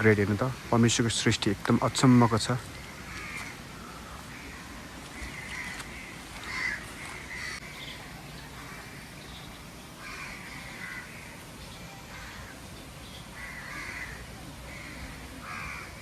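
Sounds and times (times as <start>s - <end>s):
faint background hiss: 0.0s - 16.0s
crows cawing: 2.3s - 7.8s, 8.6s - 9.1s, 10.0s - 11.4s, 12.1s - 12.6s, 13.4s - 16.0s.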